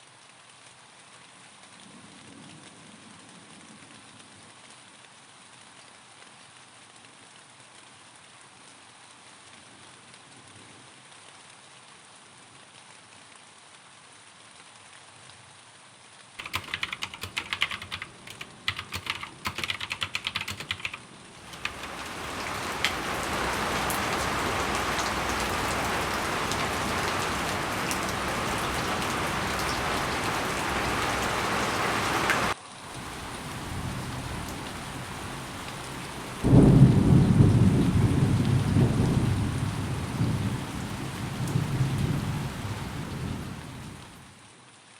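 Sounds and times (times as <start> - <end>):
rapid keyboard typing: 16.4 - 23.3
heavy rain: 16.4 - 44.5
low rumble of thunder: 21.5 - 44.2.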